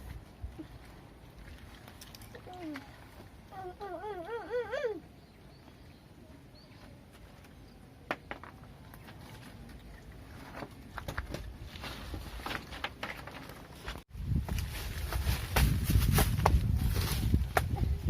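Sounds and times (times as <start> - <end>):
footsteps rustling through vegetation: 13.8 - 17.8.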